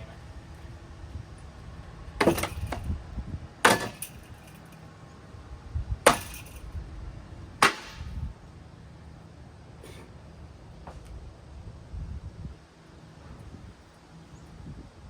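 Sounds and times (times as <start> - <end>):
ceiling fan being smashed: 2.2 - 2.9, 3.6 - 4.7, 6.1 - 6.7, 7.6 - 8.2.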